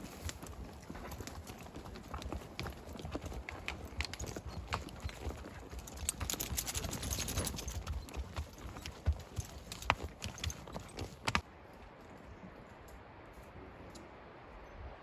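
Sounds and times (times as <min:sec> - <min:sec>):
horse hooves clopping: 0:00.0 - 0:11.4.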